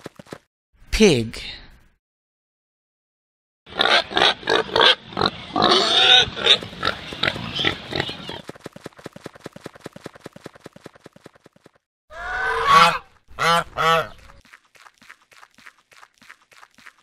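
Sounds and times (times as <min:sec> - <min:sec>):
pig grunting and squealing: 0:03.7 - 0:08.4, 0:12.1 - 0:13.0
fast run of short ticks: 0:08.4 - 0:11.8.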